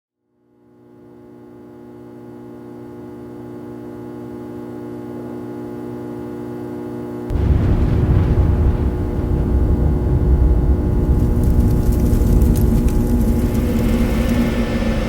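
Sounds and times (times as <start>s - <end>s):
sudden loud low rumble: 7.3s - 15.0s.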